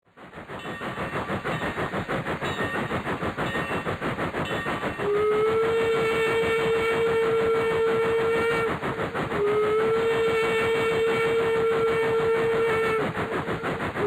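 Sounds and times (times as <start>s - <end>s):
train chugging: 0.1s - 14.0s
train whistle blast: 5.0s - 13.7s.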